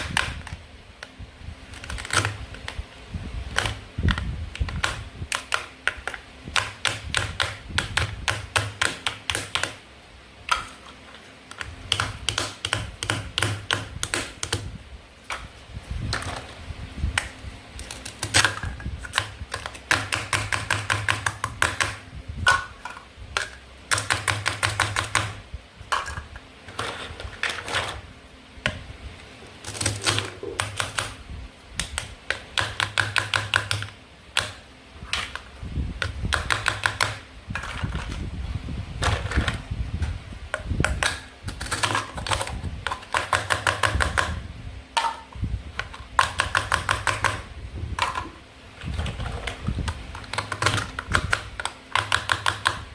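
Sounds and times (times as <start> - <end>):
plastic toys clicking and tapping: 3.5 - 9.8, 10.5 - 14.7, 17.2 - 26.3, 29.7 - 31.2, 31.8 - 38.2, 40.6 - 44.4, 45.0 - 48.4, 49.5 - 52.9.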